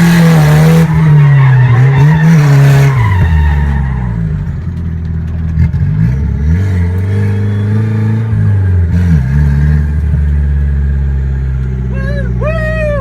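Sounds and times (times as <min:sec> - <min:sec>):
car engine revving hard: 0:00.0 - 0:04.2.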